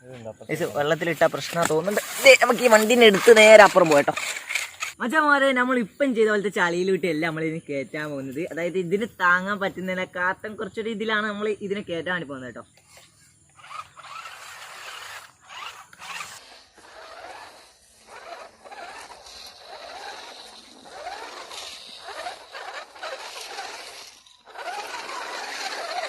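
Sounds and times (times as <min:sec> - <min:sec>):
toy car electric motor whining: 0:01.4 - 0:05.0, 0:12.7 - 0:26.0.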